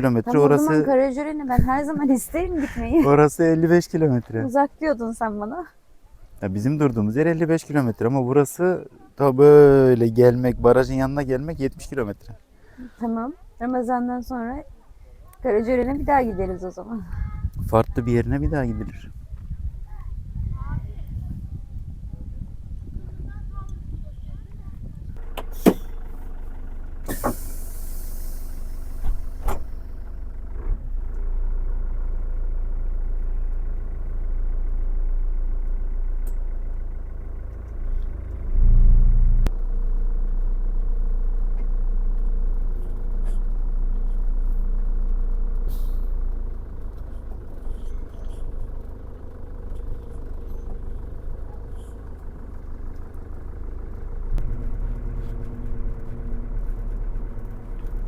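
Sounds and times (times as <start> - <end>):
vehicle engine running: 0.0 - 58.0
short hiss: 27.0 - 29.8, 45.7 - 46.2.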